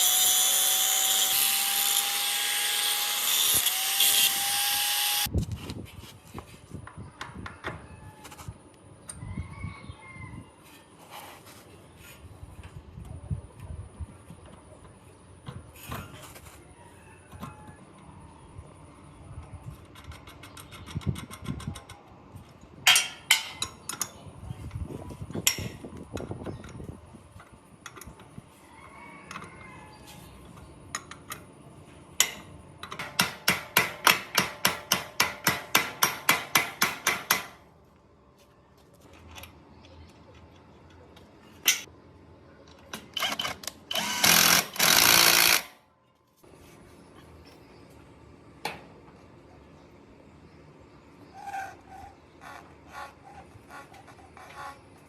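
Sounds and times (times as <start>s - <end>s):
tool knocks and clanks: 22.9s - 24.1s.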